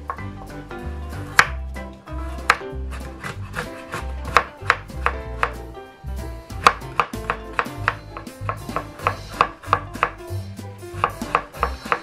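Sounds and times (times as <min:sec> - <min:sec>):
background music: 0:00.0 - 0:12.0
knife knocking on cutting board: 0:02.4 - 0:05.6, 0:06.6 - 0:10.2, 0:11.0 - 0:12.0.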